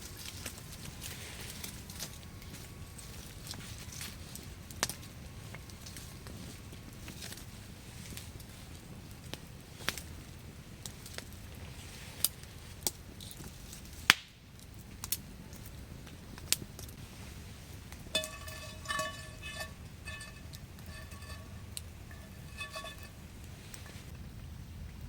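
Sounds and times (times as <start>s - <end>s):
metal cookware knocks and taps: 18.1s - 23.2s.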